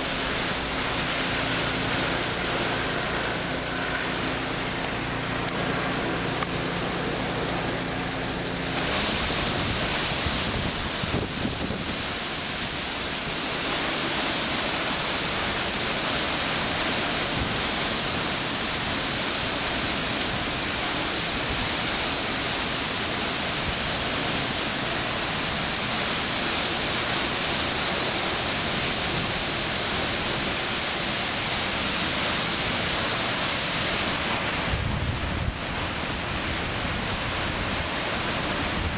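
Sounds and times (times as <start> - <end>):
wind and rain rushing: 0.0 - 38.9
wind buffeting microphone: 8.9 - 12.2, 34.1 - 38.9.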